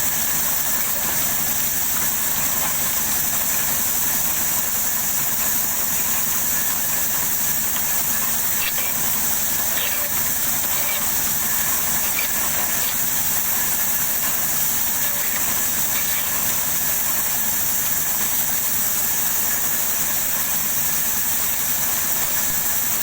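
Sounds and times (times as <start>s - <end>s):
sawmill machinery hissing: 0.0s - 23.0s.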